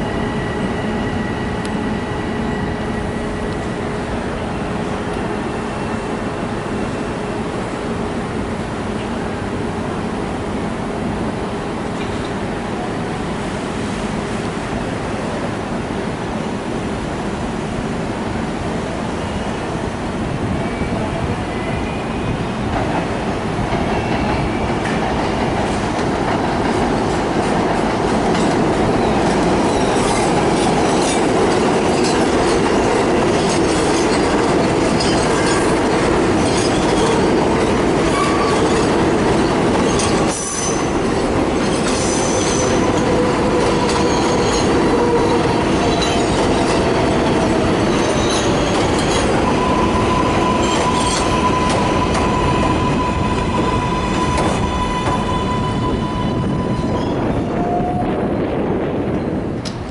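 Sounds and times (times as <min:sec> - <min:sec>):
train running on rails: 0:00.0 - 0:59.9
wheels clacking over rail joints: 0:23.7 - 0:55.4
wheels squealing: 0:41.6 - 0:58.0.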